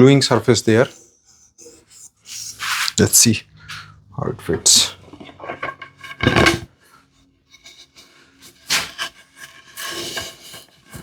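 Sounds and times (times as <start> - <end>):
wooden parts knocking and scraping: 4.4 - 6.7.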